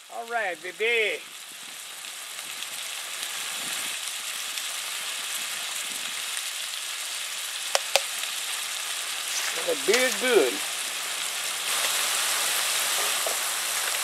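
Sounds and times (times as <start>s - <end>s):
vegetables sizzling in butter: 0.0s - 14.0s
sharp clicks: 7.8s - 8.1s.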